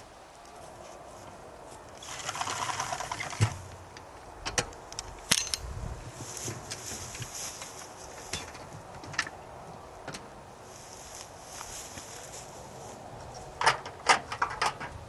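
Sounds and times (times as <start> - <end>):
dry hay rustling: 0.0 - 3.8, 5.6 - 9.0, 9.6 - 13.6.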